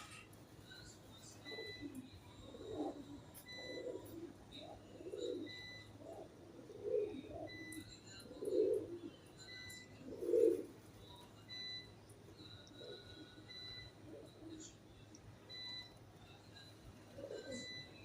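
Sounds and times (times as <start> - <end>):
pigeons cooing: 1.3 - 11.2, 12.7 - 14.8, 17.0 - 18.0.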